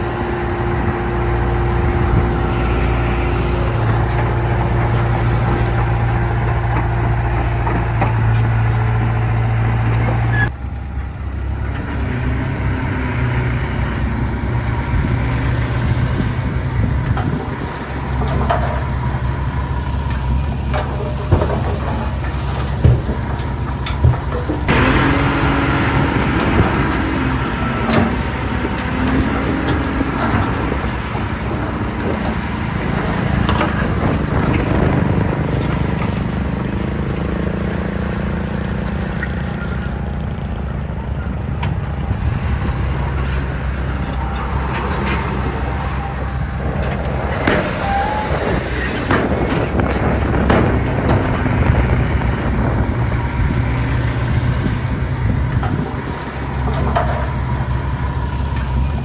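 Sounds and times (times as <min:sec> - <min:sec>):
bulldozer diesel engine running: 0:00.0 - 0:59.0
clanks and knocks: 0:00.6 - 0:10.5, 0:16.2 - 0:40.8, 0:41.4 - 0:59.0.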